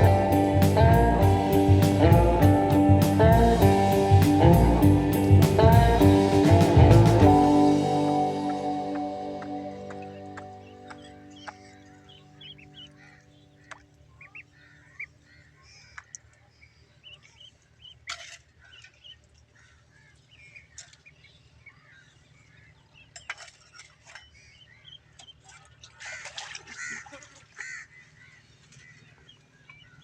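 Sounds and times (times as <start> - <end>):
ducklings peeping: 8.4 - 16.3, 17.0 - 19.2, 24.1 - 25.9.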